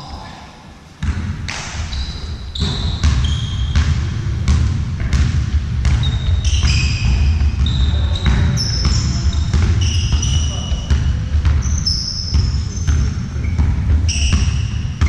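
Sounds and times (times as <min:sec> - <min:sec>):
ball bouncing on court floor: 0:01.0 - 0:15.0
shoes squeaking on court: 0:01.5 - 0:03.9, 0:05.8 - 0:15.0.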